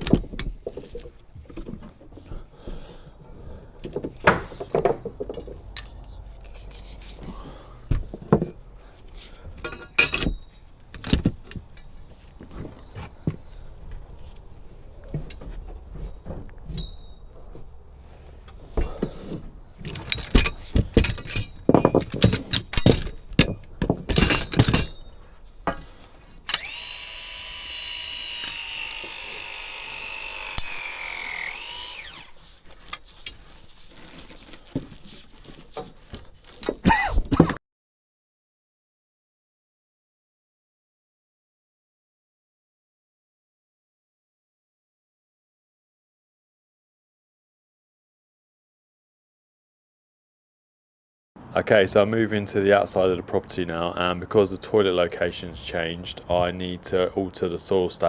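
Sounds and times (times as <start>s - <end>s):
tools and pipes knocking: 3.8s - 6.0s, 18.8s - 25.0s
power tool whining: 26.4s - 33.1s.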